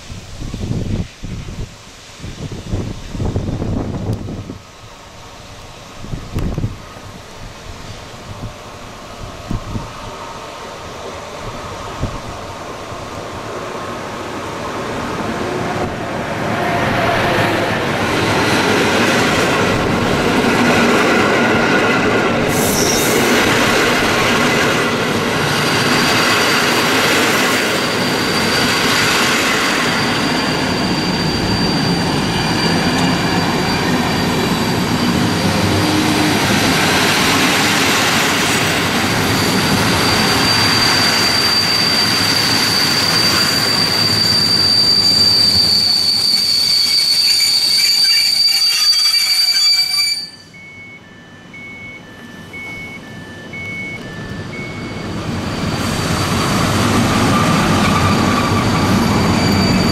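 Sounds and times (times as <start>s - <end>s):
train running past: 0.0s - 59.9s
high wheel squeal: 15.7s - 59.9s.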